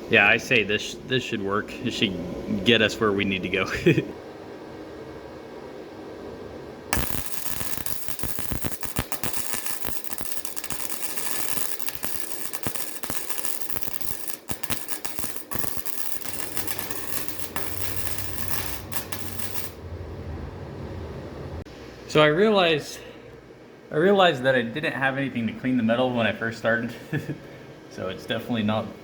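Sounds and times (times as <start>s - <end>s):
welding arc crackling: 6.9s - 19.8s.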